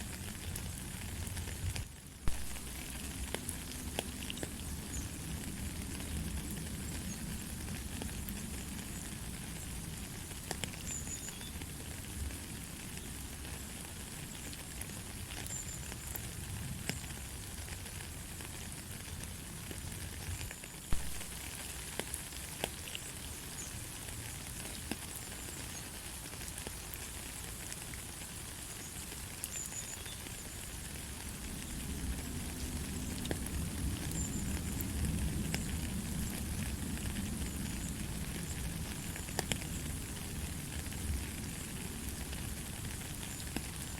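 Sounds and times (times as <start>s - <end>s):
rain drop ticks: 0.0s - 12.3s, 12.9s - 43.9s
light rain: 0.0s - 43.9s.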